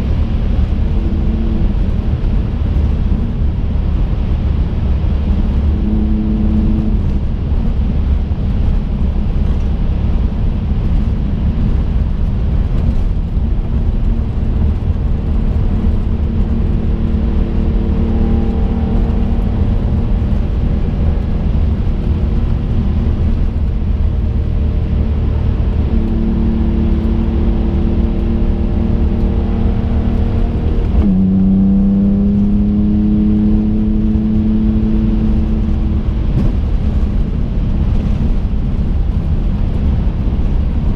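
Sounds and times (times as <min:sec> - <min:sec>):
car engine from inside cabin: 0:00.0 - 0:40.9
low road rumble: 0:00.0 - 0:40.9.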